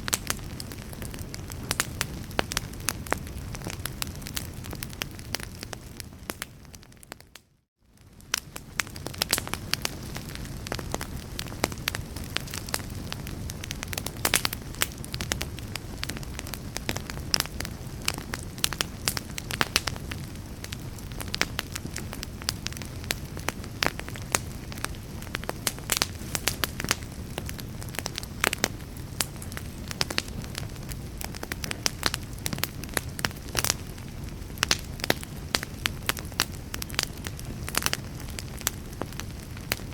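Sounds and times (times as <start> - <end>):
wood fire crackling and popping: 0.0 - 39.9
fire hissing: 8.3 - 39.9.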